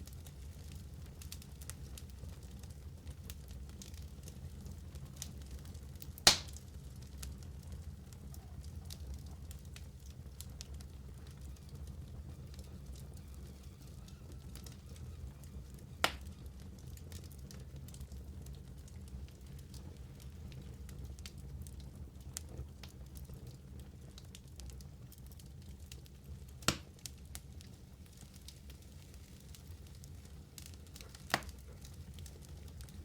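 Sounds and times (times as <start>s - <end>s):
wood fire crackling: 0.0s - 33.0s
sharp loud pops: 6.3s - 6.5s.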